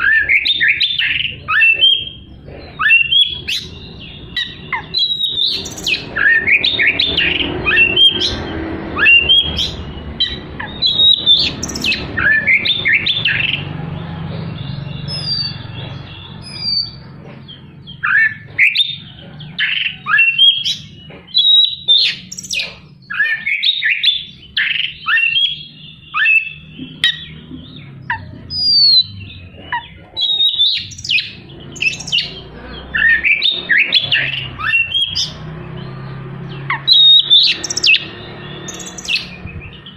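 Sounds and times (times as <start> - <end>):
bird singing harsh chattering song: 0.0 - 39.9.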